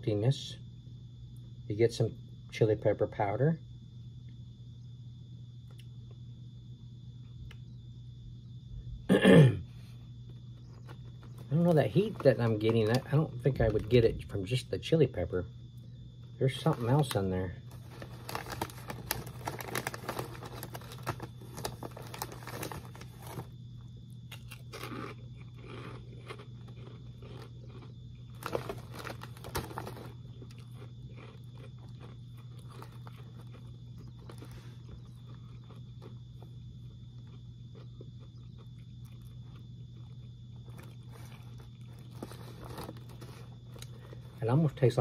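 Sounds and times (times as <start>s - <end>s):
steady low hum: 0.0s - 45.0s
crunching fried pork rinds: 10.2s - 15.3s, 16.2s - 45.0s
snack bag crinkling: 10.3s - 13.8s, 16.5s - 44.5s.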